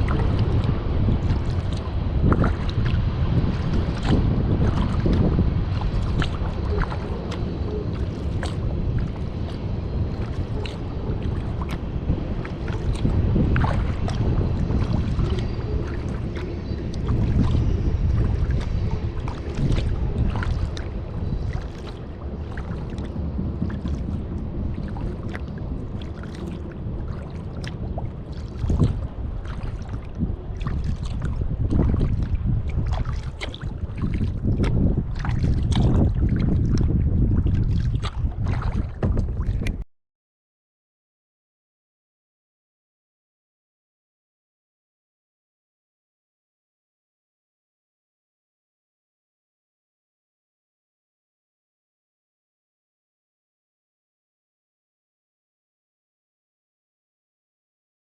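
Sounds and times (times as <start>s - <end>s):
paddle splashing in water: 0.0s - 39.8s
wind rumble on microphone: 0.0s - 39.8s.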